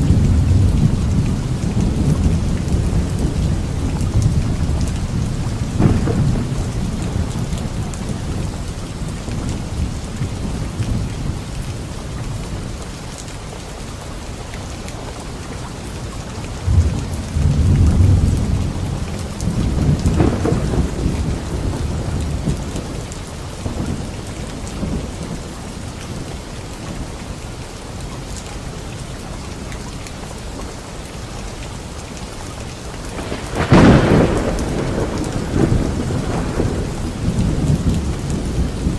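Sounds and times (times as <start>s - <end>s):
rolling thunder: 0.0s - 11.6s, 16.6s - 25.5s, 33.1s - 38.9s
steady rain: 0.0s - 38.9s
sharp thunderclap: 4.1s - 8.4s, 19.4s - 22.9s, 33.2s - 38.9s.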